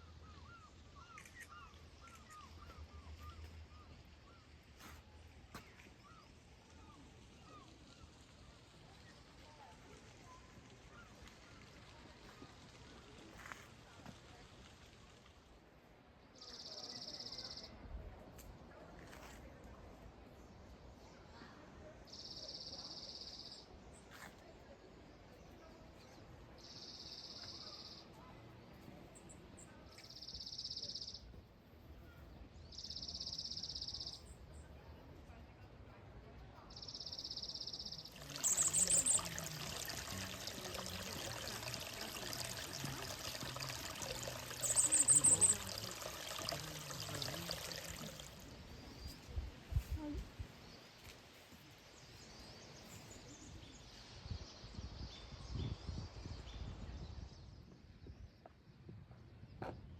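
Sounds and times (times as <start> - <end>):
running water: 37.1 - 49.3
high buzzy call: 38.0 - 48.4.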